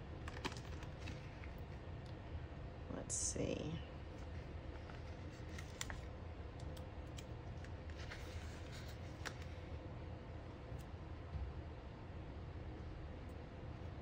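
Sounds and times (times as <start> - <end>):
low steady hum: 0.0 - 14.0
stickers peeled and pressed: 4.8 - 9.5.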